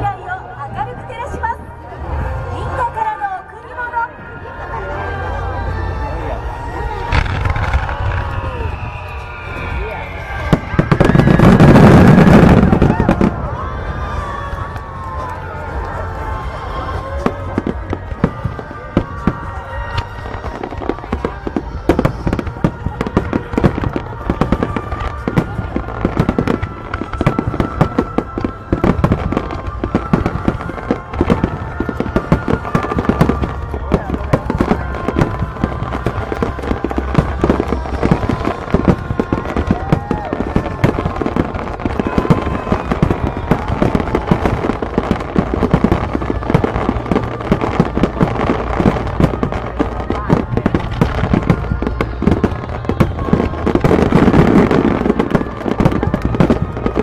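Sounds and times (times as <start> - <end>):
fireworks bangs and crackles: 0.0 - 57.0
low rumble: 4.2 - 43.7.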